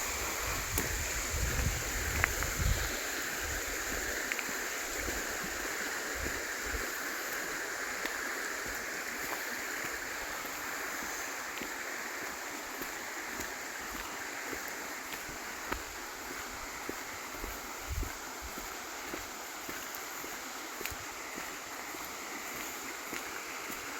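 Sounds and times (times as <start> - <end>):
river rushing over rocks: 0.0 - 23.9.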